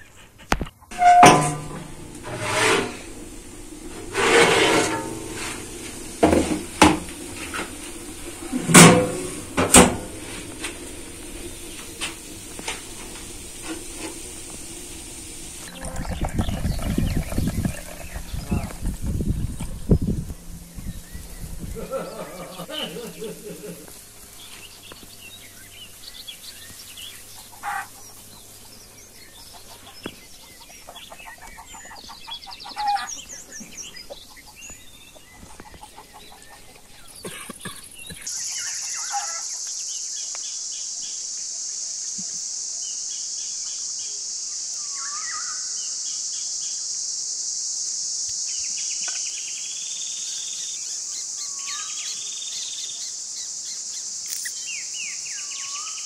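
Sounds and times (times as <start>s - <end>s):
chickens clucking: 0.0s - 20.2s, 27.4s - 28.2s, 29.5s - 38.3s
high-pitched insect chorus: 0.9s - 56.0s
small birds chirping: 10.2s - 41.2s, 48.3s - 56.0s.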